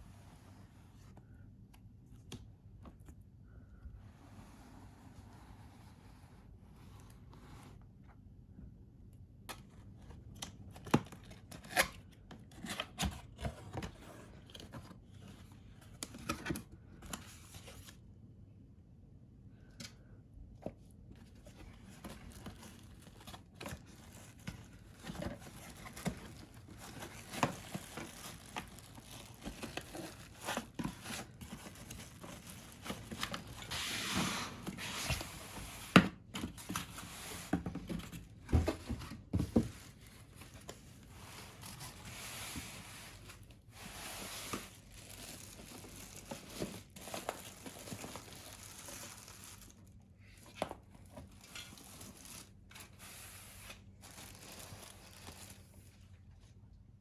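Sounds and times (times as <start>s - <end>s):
packaging crinkling and tearing: 21.9s - 33.7s, 44.6s - 50.0s, 51.3s - 52.9s.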